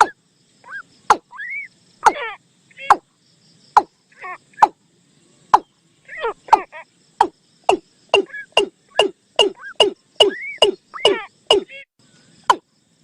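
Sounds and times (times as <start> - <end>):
bird calls played back: 0.0 - 3.1, 5.5 - 12.6.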